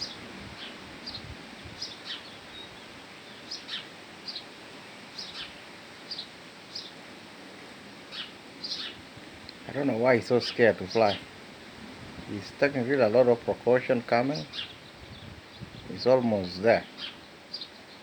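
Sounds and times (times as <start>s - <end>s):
small bird chirping: 0.0s - 4.5s, 5.1s - 7.0s, 8.1s - 9.6s, 13.8s - 18.0s
steady background hiss: 0.0s - 18.0s.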